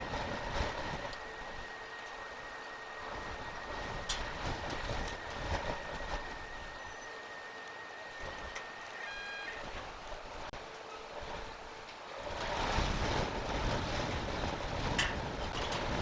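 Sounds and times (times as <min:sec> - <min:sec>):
wind buffeting microphone: 0:00.0 - 0:16.0
short pitched tone: 0:07.9 - 0:09.8.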